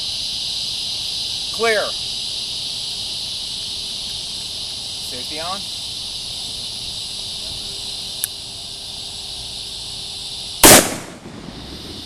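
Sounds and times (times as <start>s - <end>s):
pistol gunshot: 10.6s - 12.0s.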